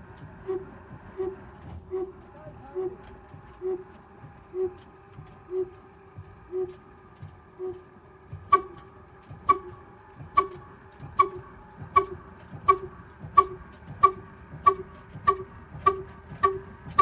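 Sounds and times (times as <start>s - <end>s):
stationary diesel engine firing: 8.3s - 17.0s.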